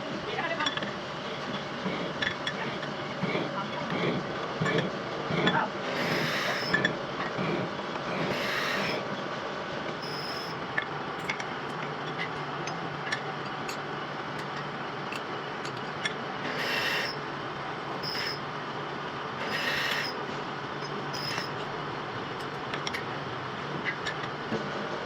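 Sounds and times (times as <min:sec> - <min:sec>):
metal lathe humming: 0:01.5 - 0:09.2, 0:09.9 - 0:24.3
high scraping squeals: 0:06.0 - 0:06.8, 0:08.3 - 0:09.0, 0:10.0 - 0:10.6, 0:16.4 - 0:17.2, 0:18.0 - 0:18.4, 0:19.4 - 0:20.2, 0:20.8 - 0:21.6.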